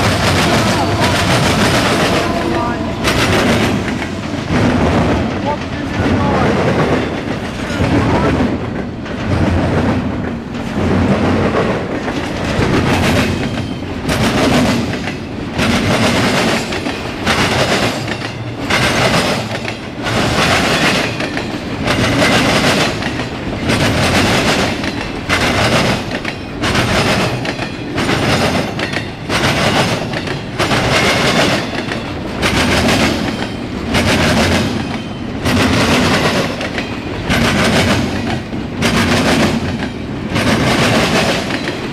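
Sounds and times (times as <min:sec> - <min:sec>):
train wheels clattering over rail joints: 0:00.0 - 0:41.9.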